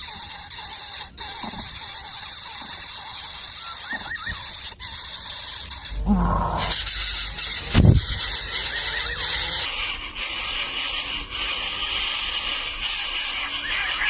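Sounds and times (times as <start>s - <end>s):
chicks squeaky begging calls: 0.0s - 9.7s, 13.3s - 14.0s
steady high hiss: 0.0s - 9.7s.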